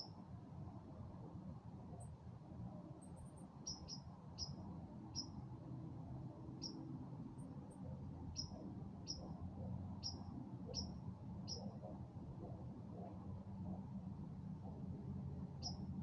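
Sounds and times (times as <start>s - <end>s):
small bird chip calls: 3.6s - 5.4s, 6.6s - 6.8s, 8.4s - 9.4s, 10.0s - 11.8s, 15.6s - 15.9s.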